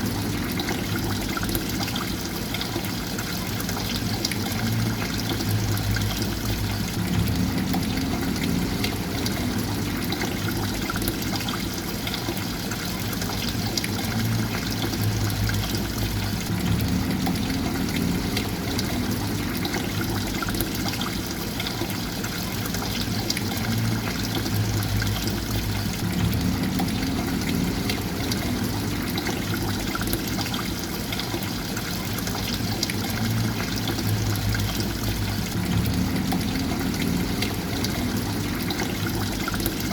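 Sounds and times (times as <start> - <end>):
water trickling and pouring: 0.0 - 39.9
low rumble: 4.7 - 11.2, 14.4 - 20.9, 23.6 - 30.4, 33.1 - 39.9.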